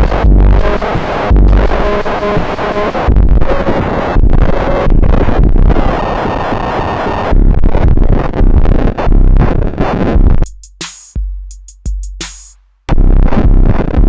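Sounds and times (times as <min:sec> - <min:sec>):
drum machine hits with bass: 0:00.0 - 0:03.3, 0:10.4 - 0:13.8
harsh guitar noise music: 0:00.0 - 0:14.0.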